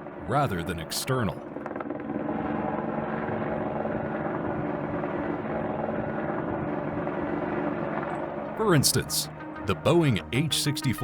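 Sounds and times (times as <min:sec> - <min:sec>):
helicopter engine and rotor: 0:00.0 - 0:08.6.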